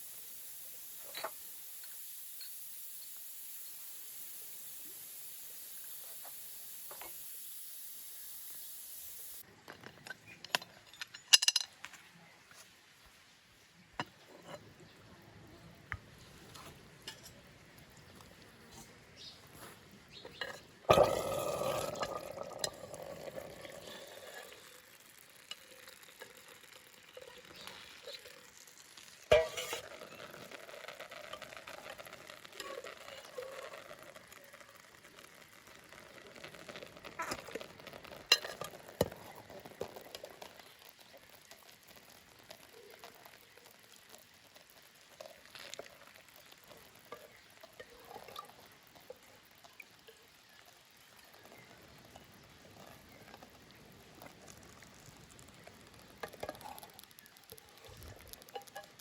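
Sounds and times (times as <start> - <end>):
food sizzling in a pan: 0.0 - 9.5, 17.0 - 59.0
stirring and scraping in a pan: 14.0 - 15.0, 16.0 - 59.0.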